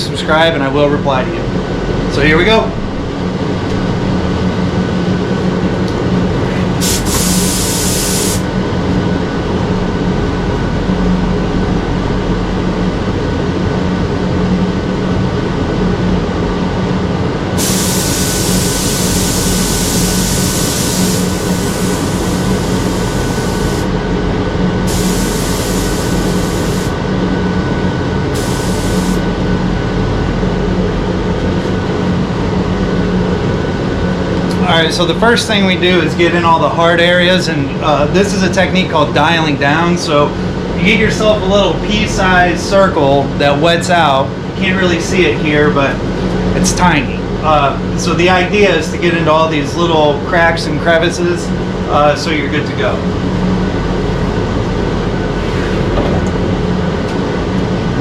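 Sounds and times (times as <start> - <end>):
ventilation fan humming: 0.0 - 58.0
compressed air hissing: 6.6 - 8.5, 17.6 - 23.9, 24.8 - 27.0, 28.4 - 29.3.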